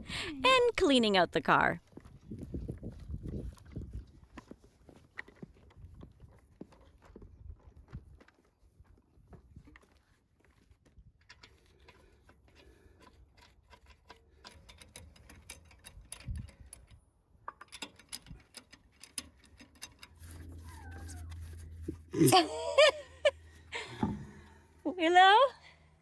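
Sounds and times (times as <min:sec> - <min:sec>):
low steady hum: 0:18.5 - 0:26.0.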